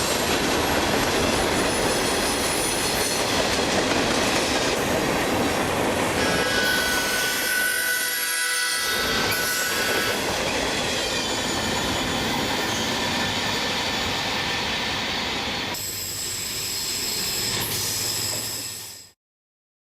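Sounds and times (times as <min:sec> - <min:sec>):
train wheels rumbling on track: 0:00.0 - 0:19.2
high-pitched wheel squeal: 0:06.2 - 0:10.2.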